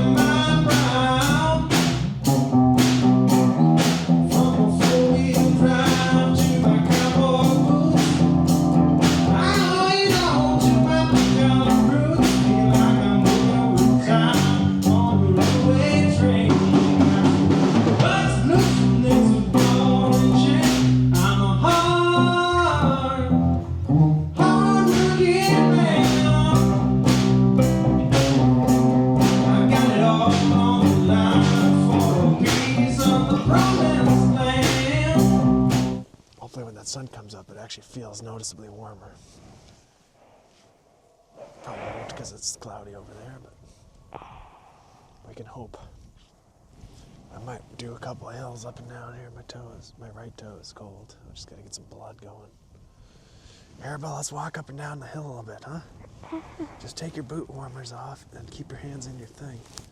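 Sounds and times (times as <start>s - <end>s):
song with singing guitar and drums: 0.0s - 36.1s.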